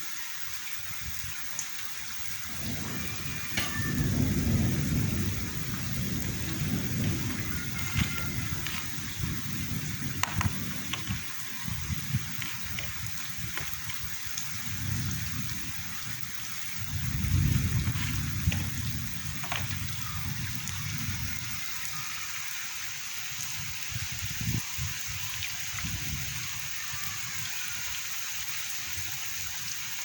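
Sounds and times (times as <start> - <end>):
heavy rain falling: 0.0 - 30.0
sharp drips: 1.0 - 30.0
low rumble of thunder: 2.2 - 22.1.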